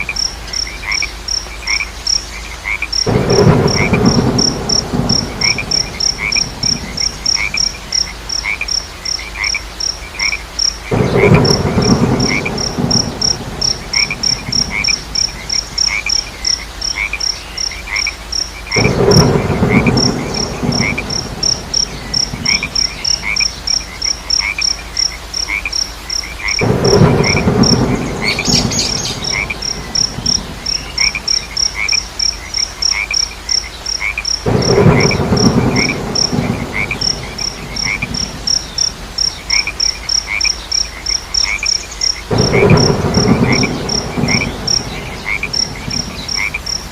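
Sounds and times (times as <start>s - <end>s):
crickets chirping: 0.0s - 46.9s
rain hiss: 0.0s - 46.9s
lower chirp: 26.9s - 31.2s.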